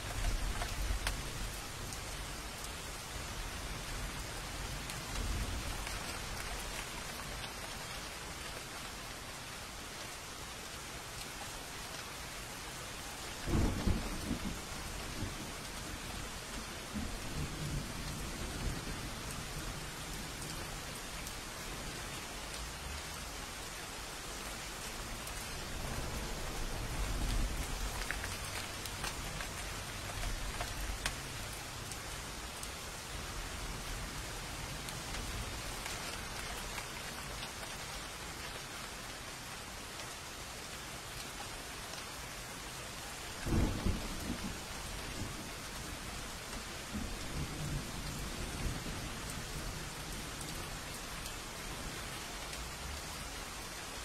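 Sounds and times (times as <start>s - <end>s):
steady rain: 0.0s - 54.0s
thunderclap: 13.5s - 15.4s
distant thunder rumbling: 13.5s - 19.9s, 43.4s - 46.0s.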